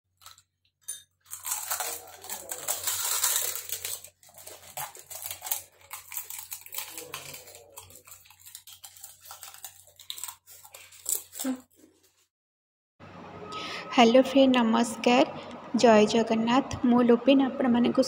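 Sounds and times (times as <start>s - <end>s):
crisp shells crunching when chewed: 1.2s - 12.1s.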